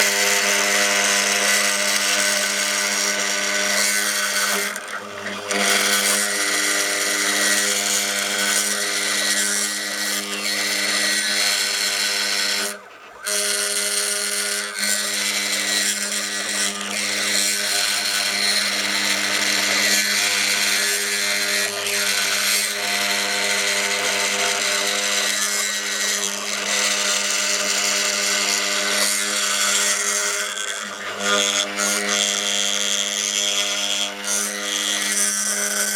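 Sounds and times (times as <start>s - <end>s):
spindle motor whining: 0.0s - 35.9s.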